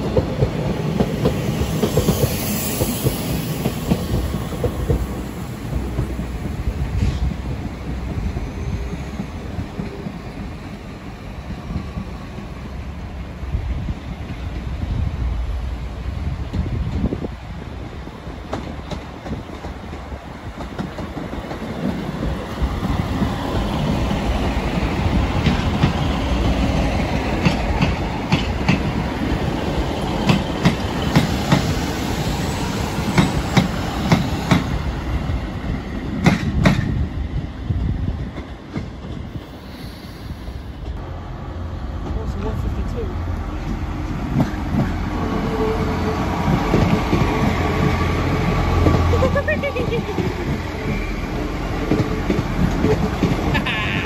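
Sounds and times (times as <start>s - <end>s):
train wheels clicking over rail joints: 0.0s - 10.2s, 18.4s - 32.2s, 33.0s - 34.8s, 36.1s - 37.0s, 43.6s - 45.5s, 46.2s - 54.0s.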